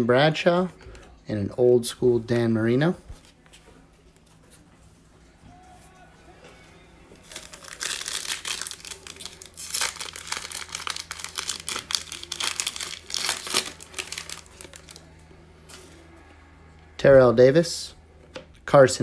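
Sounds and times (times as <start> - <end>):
plastic wrapper tearing and crinkling: 7.2 - 15.1.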